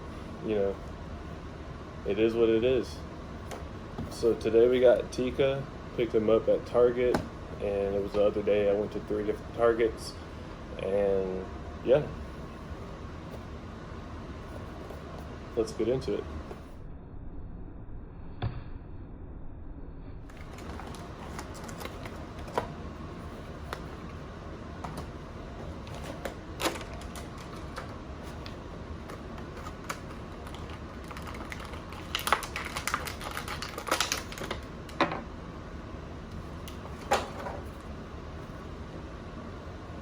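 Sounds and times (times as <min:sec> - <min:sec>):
cardboard and plastic crinkling: 0:20.3 - 0:35.0.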